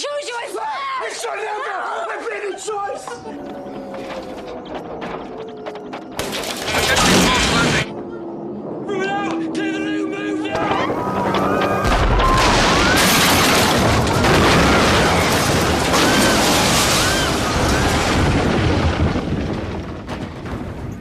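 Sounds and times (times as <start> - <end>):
high rising-and-falling cries: 0.7 - 6.6, 7.8 - 13.8
dense crashing rumble: 10.6 - 21.0.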